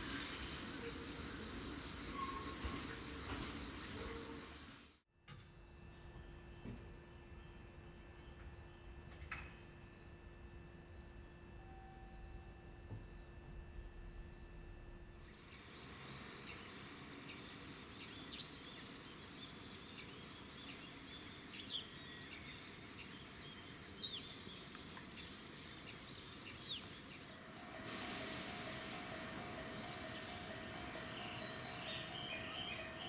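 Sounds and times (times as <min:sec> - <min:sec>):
low background hum: 0:00.0 - 0:33.0
pulsing ringing tone: 0:10.9 - 0:15.2, 0:27.5 - 0:33.0
high falling bird chirps: 0:26.2 - 0:33.0
rushing noise: 0:27.3 - 0:33.0.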